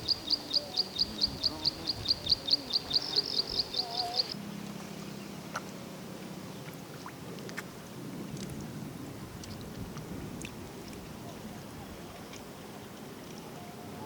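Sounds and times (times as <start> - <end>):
bird chirping: 0.0 - 4.4.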